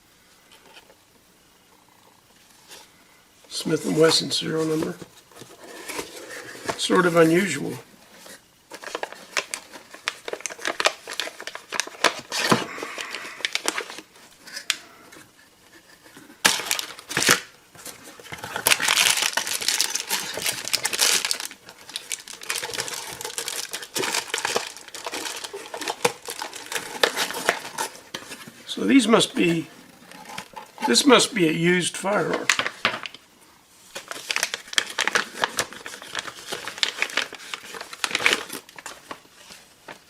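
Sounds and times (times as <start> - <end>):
packaging crinkling and tearing: 8.2 - 14.8, 16.4 - 31.2, 32.1 - 33.2, 33.9 - 40.0.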